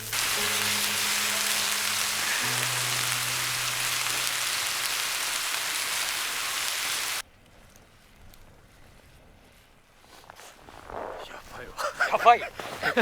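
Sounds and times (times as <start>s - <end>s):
meat sizzling on a hot pan: 0.0s - 7.2s.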